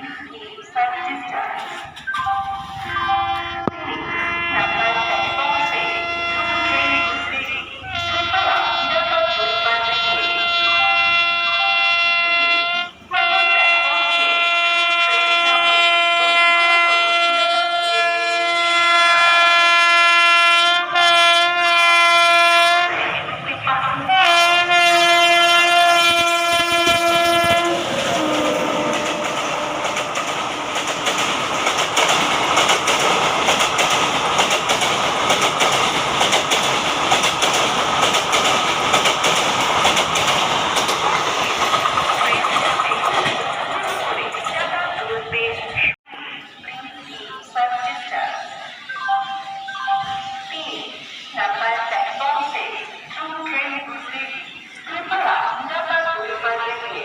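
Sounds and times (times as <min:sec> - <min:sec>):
train rushing past: 0:00.1 - 0:13.2, 0:21.0 - 0:47.4
train horn: 0:03.1 - 0:23.2, 0:24.0 - 0:31.1
train wheels clickety-clack: 0:26.6 - 0:45.2.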